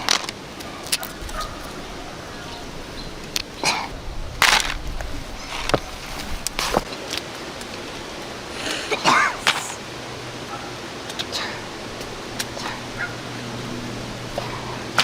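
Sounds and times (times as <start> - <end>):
dry crunching and rustling: 0.0 - 9.8.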